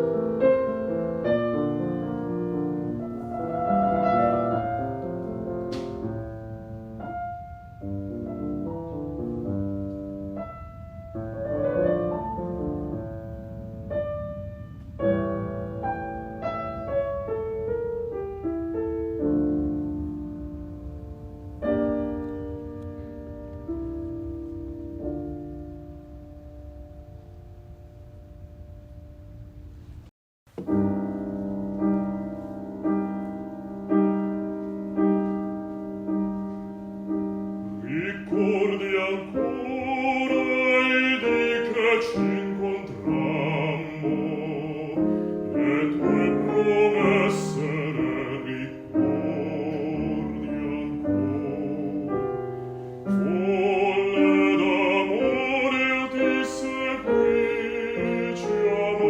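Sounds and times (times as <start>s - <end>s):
piano: 0.0s - 59.0s
bass voice singing with vibrato: 37.8s - 52.4s, 53.1s - 59.0s.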